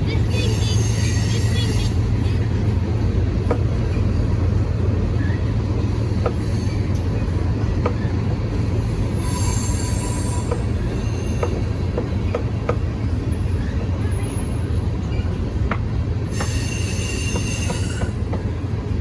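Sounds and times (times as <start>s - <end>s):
train wheels rumbling on rails: 0.0s - 19.0s
high wheel squeal: 9.2s - 11.7s, 16.3s - 18.2s.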